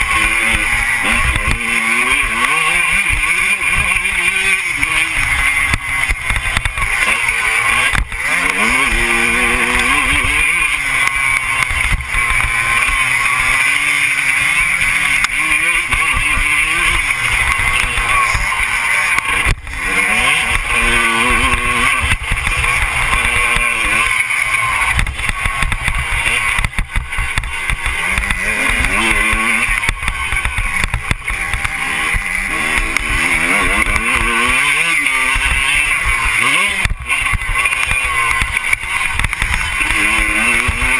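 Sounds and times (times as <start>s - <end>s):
motorbike engine revving: 0.0s - 40.9s
steady rushing noise: 0.0s - 40.9s.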